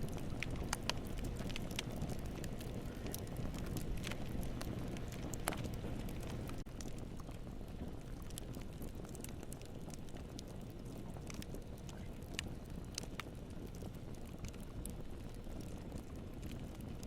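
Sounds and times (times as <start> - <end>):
low rumble: 0.0 - 7.1
campfire crackling and popping: 0.0 - 17.0.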